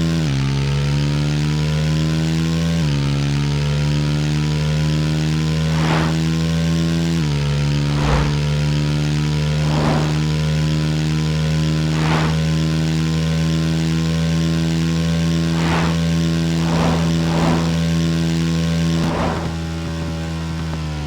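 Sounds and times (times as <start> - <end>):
steady engine-like hum: 4.3 - 21.0
brief swooshes: 5.7 - 6.3, 7.9 - 8.5, 9.5 - 10.3, 11.8 - 12.6, 15.5 - 18.2, 18.9 - 20.3.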